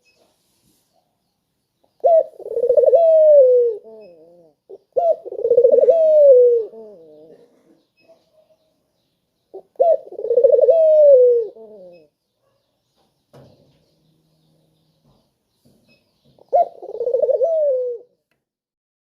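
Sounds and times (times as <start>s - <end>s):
dove cooing: 2.0s - 8.2s, 9.5s - 12.2s, 16.4s - 18.2s.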